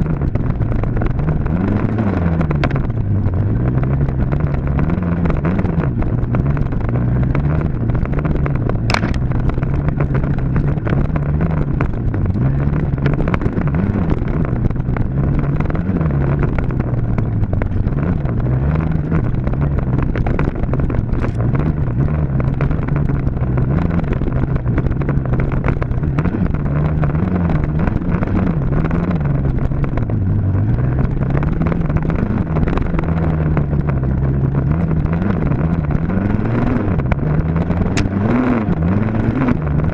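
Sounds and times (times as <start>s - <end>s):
dirt bike engine revving: 8.9s - 14.4s.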